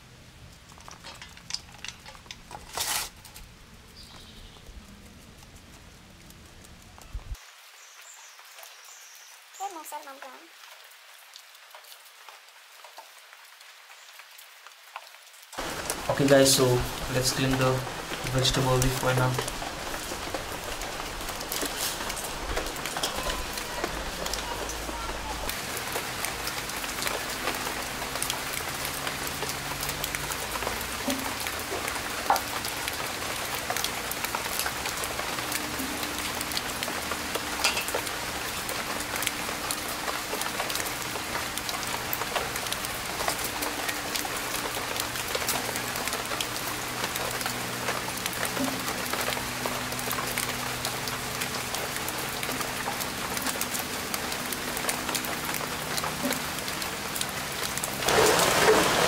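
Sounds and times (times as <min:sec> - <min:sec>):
rain falling: 0:00.0 - 0:59.0
raindrops striking close by: 0:00.0 - 0:59.0.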